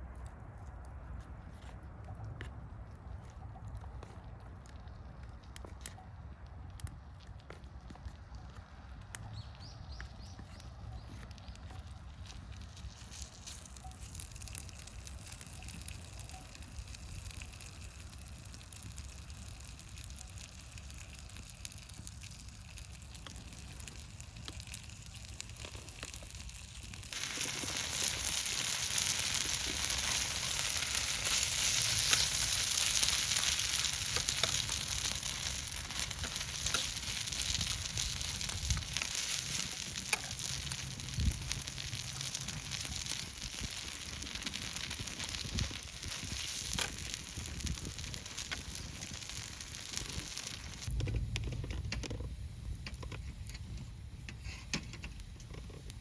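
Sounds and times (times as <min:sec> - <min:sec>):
food sizzling in a hot pan: 0:13.1 - 0:50.9.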